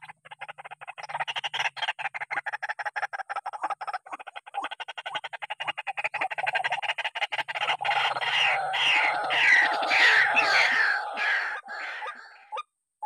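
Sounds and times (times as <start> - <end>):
bird calling harsh falling calls: 7.9 - 12.6.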